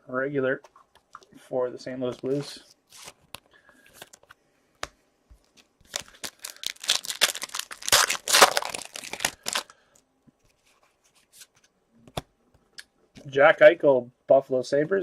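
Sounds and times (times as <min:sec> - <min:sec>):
card pack wrapper crinkling: 0:02.1 - 0:04.4, 0:05.4 - 0:09.7.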